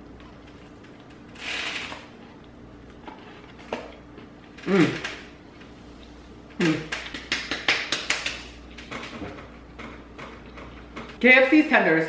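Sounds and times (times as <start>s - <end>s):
person humming mm: 4.6s - 5.2s, 6.6s - 7.0s.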